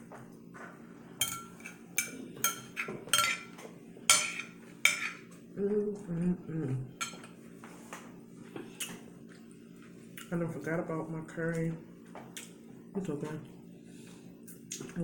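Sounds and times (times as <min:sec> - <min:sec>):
utensils clinking against a dish: 0:01.2 - 0:05.3, 0:07.0 - 0:07.4
voice humming: 0:05.5 - 0:07.0.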